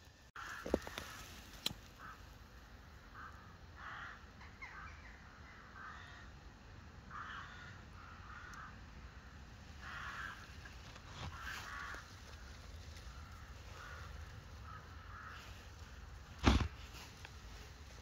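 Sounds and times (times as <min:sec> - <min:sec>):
bird calling: 0:03.0 - 0:06.3.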